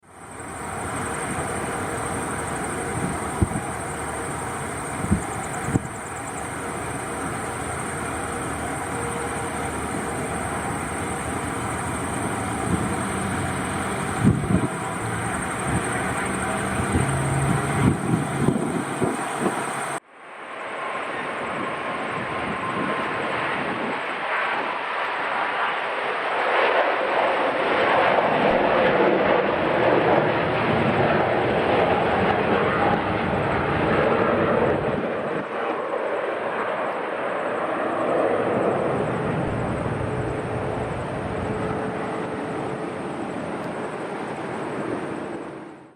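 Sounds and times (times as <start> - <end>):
jet engines at takeoff thrust: 0.0 - 45.9
wind buffeting microphone: 0.4 - 20.0, 21.5 - 24.2, 38.5 - 45.4.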